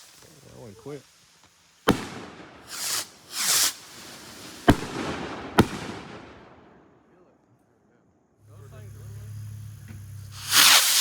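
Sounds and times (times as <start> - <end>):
fireworks hissing bursts: 0.0 - 6.4, 8.4 - 11.0
fireworks bangs: 0.0 - 6.9, 9.0 - 11.0.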